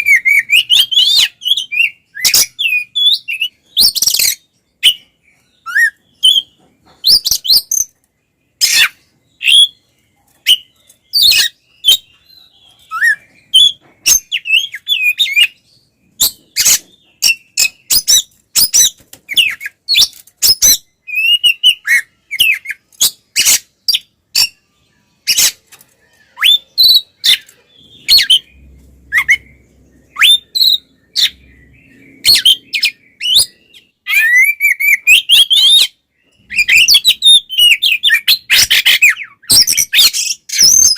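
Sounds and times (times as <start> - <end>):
bird singing sharp whistles: 29.1 - 31.4.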